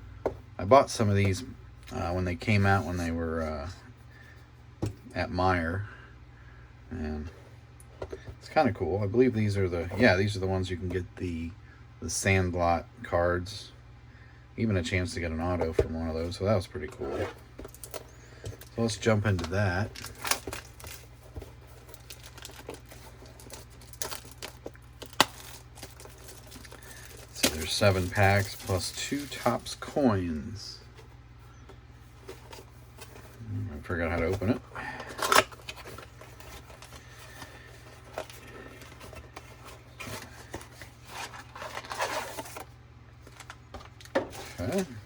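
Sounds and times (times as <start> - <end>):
cardboard rubbing and scraping: 16.9 - 17.6
packaging crinkling and tearing: 17.6 - 30.0, 34.1 - 44.8.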